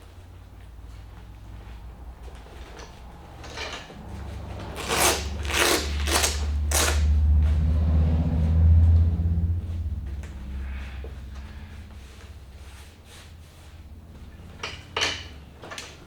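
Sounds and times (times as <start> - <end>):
low engine rumble: 0.0 - 16.0
zipper rasping: 4.6 - 7.1.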